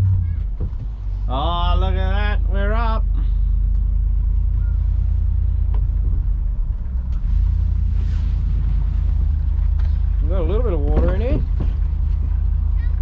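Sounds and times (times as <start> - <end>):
outboard motor rumbling: 0.0 - 13.0.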